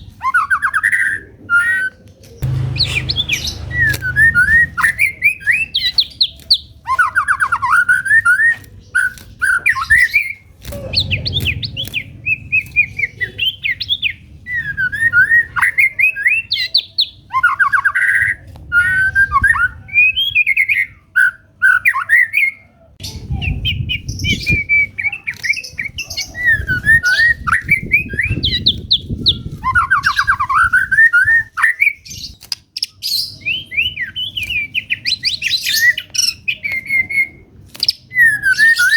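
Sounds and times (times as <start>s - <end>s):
sharp clicks: 2.4s - 5.2s, 10.6s - 12.8s
low rumble: 2.4s - 5.6s, 10.7s - 12.9s
bird singing whistled phrases: 33.3s - 38.9s.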